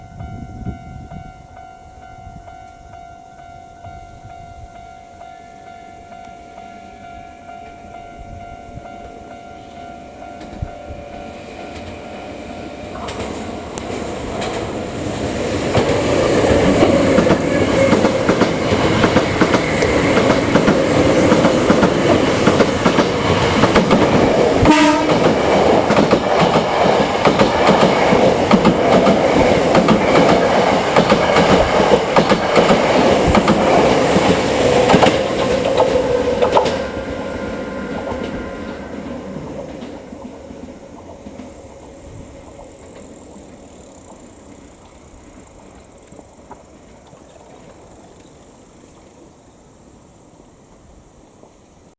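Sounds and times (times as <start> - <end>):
wheels clattering over rail joints: 11.6 - 41.8
train horn blast: 24.5 - 25.8.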